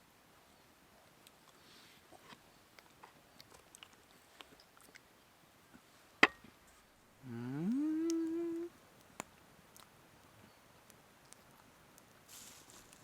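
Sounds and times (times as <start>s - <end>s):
person humming a rising note: 7.2s - 8.7s.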